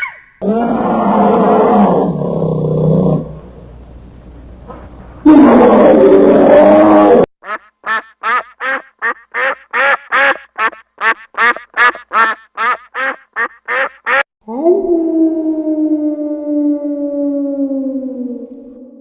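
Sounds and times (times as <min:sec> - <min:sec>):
duck quacking: 0:07.4 - 0:14.2.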